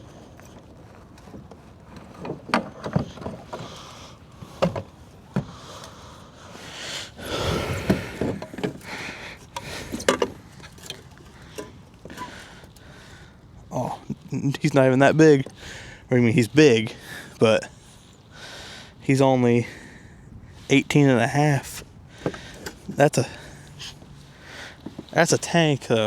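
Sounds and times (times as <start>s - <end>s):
knocks and clatter on kayak: 0.5s - 3.8s.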